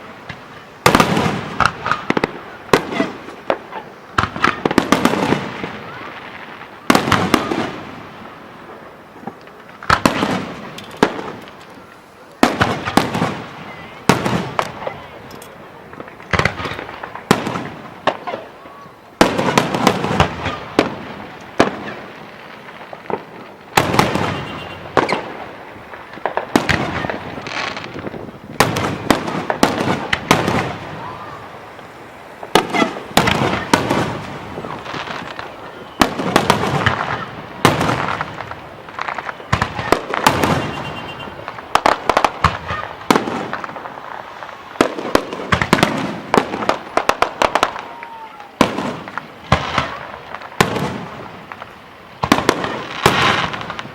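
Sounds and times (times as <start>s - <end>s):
firework shells bursting: 9.2s - 13.4s.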